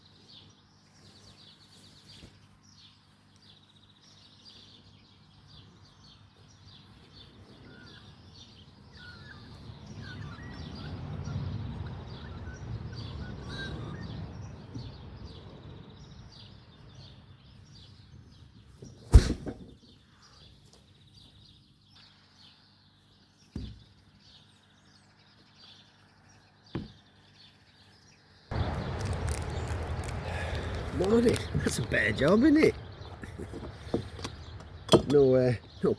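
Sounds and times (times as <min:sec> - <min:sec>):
birds chirping and calling: 0:00.0 - 0:19.0, 0:19.8 - 0:35.9
sharp loud knock: 0:19.1 - 0:19.6.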